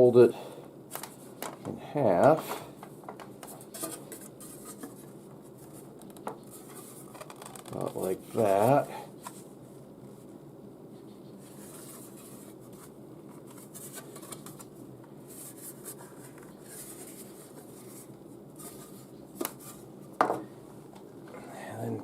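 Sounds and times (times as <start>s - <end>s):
handling and rubbing materials: 3.4s - 20.2s.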